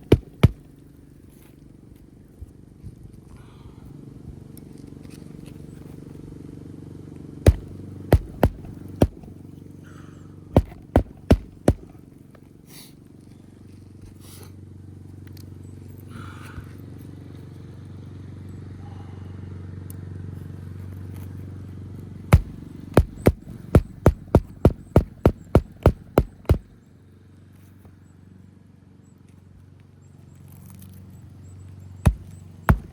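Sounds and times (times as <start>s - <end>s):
hatchet driving nails: 0.0s - 0.7s, 7.5s - 9.3s, 10.6s - 12.0s, 22.4s - 26.6s, 32.1s - 32.9s.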